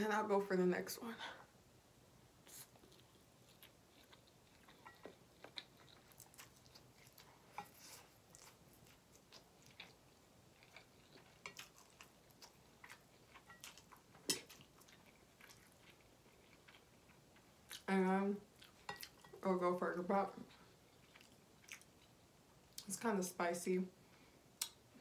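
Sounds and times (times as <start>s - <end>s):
mouth chewing noodles: 2.4s - 17.9s, 20.4s - 22.8s.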